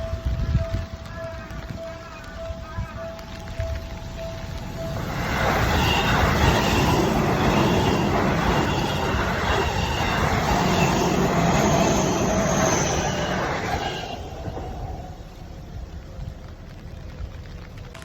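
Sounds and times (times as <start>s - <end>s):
crossing bell dinging: 0.0s - 15.3s
train wheels rumbling on rails: 0.0s - 18.0s
high wheel squeal: 3.0s - 15.7s.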